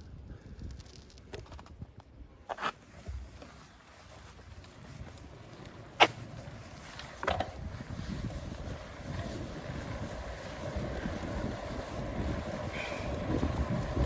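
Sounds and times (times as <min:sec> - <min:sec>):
wind buffeting microphone: 0:06.4 - 0:14.0.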